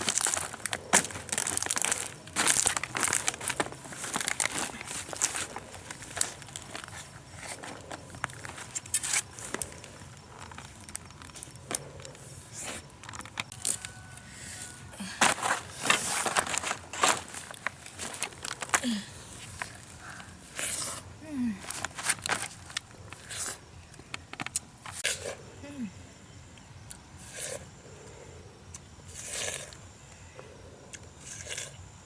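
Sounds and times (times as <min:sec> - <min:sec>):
crinkling handling noise: 0:00.0 - 0:25.0.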